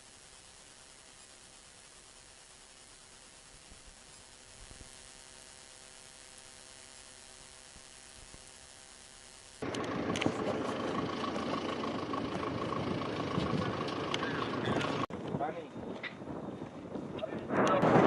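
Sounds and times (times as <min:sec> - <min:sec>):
faint steady hum: 0:00.0 - 0:15.1
high steady whine: 0:00.0 - 0:18.0
scattered clicks: 0:09.6 - 0:11.5
loud engine noise: 0:09.6 - 0:15.1.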